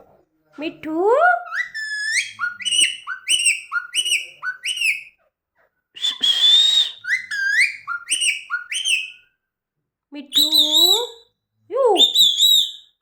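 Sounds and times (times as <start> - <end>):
parrot screeching: 1.4 - 5.2, 6.0 - 9.3, 12.0 - 12.9.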